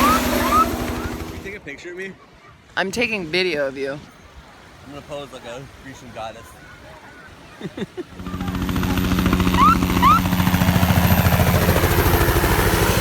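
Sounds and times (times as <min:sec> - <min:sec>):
engine running: 0:00.0 - 0:01.5, 0:08.2 - 0:13.0.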